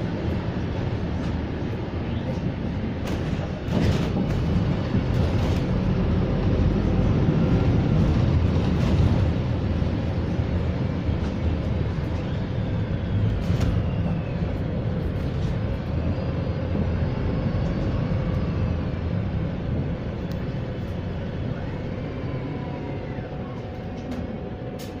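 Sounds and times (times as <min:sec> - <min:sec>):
bus engine and road rumble: 0:00.0 - 0:25.0
faint gliding whine: 0:16.0 - 0:24.9.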